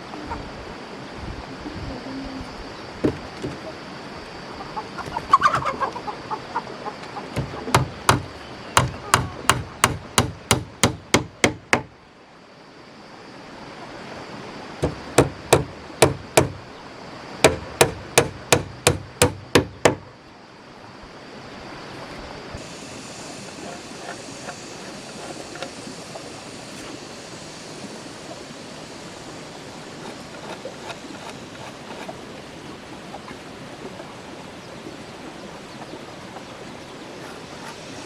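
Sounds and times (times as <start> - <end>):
outdoor hiss: 0.0 - 38.0
hammer striking wood: 7.4 - 11.9, 14.8 - 16.6, 17.4 - 20.0.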